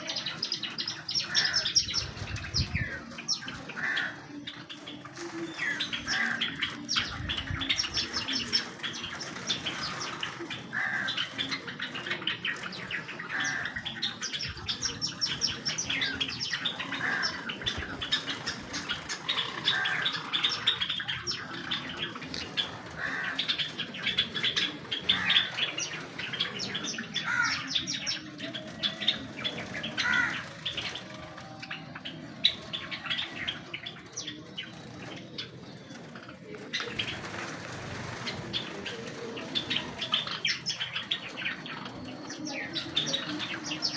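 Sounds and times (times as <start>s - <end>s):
sparrows chirping: 0.0s - 43.9s.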